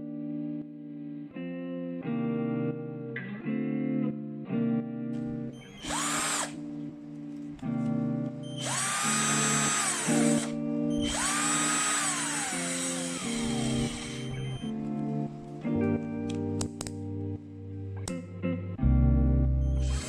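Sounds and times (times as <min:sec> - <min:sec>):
background music: 0:00.0 - 0:20.0
cordless drill motor whine: 0:05.4 - 0:06.6, 0:08.4 - 0:14.9, 0:19.7 - 0:20.0.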